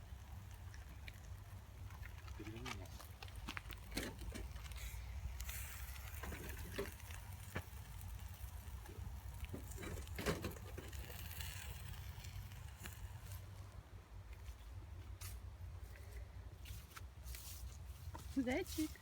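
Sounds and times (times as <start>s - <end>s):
soft rustles and clicks: 0.2s - 19.0s.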